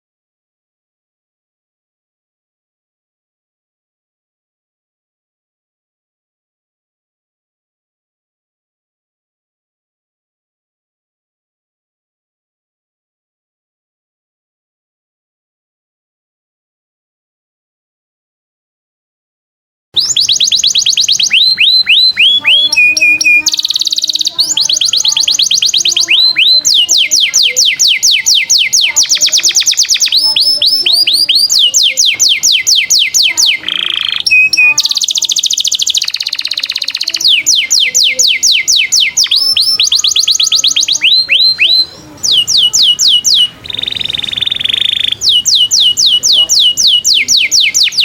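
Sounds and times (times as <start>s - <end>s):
songbirds trilling: 20.0s - 48.0s.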